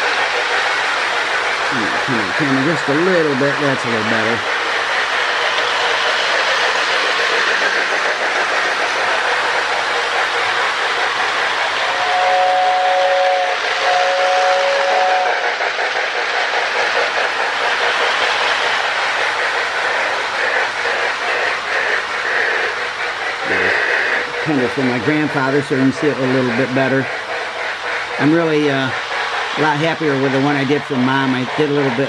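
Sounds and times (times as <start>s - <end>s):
toy train rattling on track: 0.0s - 32.0s
toy train air whistle: 11.8s - 15.5s, 23.4s - 24.3s.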